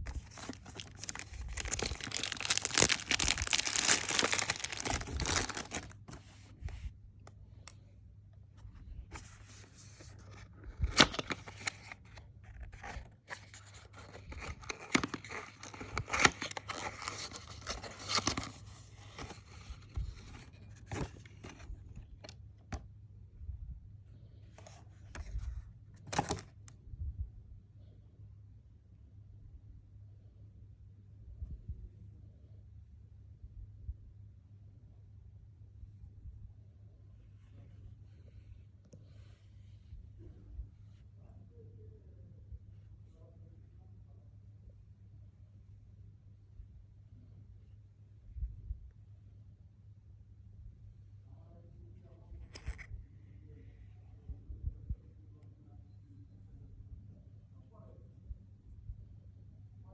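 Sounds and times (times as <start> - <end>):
packaging tearing and crinkling: 0.0 - 6.2, 14.1 - 19.9.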